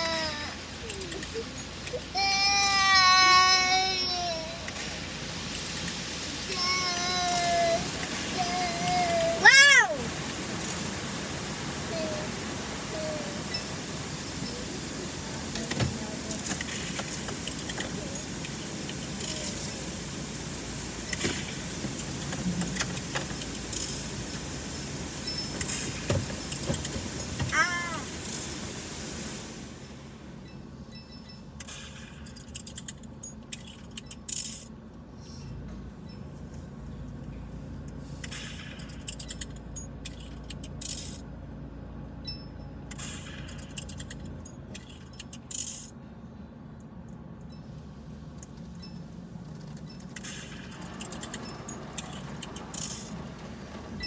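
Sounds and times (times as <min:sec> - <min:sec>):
car wash spray: 0:00.0 - 0:30.2
clicking and clattering against car: 0:15.5 - 0:19.6, 0:21.1 - 0:24.1, 0:25.4 - 0:27.7.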